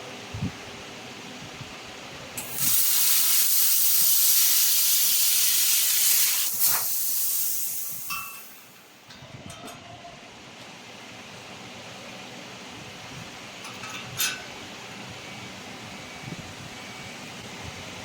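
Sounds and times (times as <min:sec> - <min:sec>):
laser machine hissing: 0:02.4 - 0:08.8.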